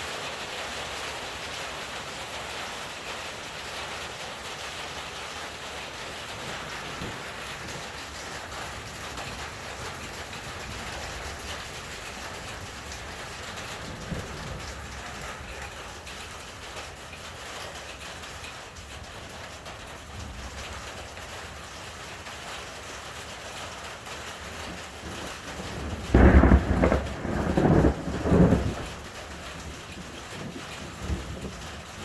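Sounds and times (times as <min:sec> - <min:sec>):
steady rain hiss: 0:00.0 - 0:32.0
rolling thunderclap: 0:06.3 - 0:16.9, 0:24.6 - 0:32.0.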